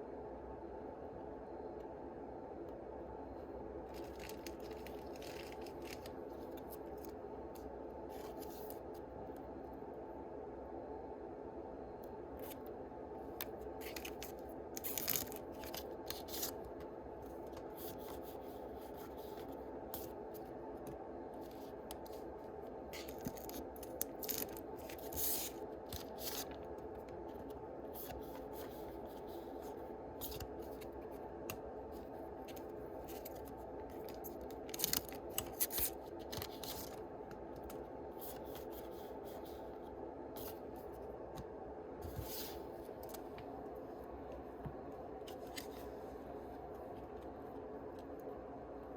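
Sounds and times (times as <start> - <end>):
steady low hum: 0.0 - 48.9
foil wrappers crinkling and tearing: 13.9 - 16.5, 23.0 - 26.5, 33.1 - 37.0
cards being handled: 23.0 - 39.6.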